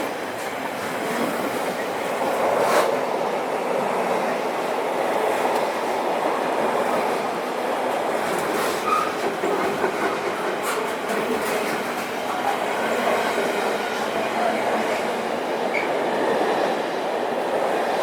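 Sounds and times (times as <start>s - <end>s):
train wheels on rails: 0.0s - 18.0s.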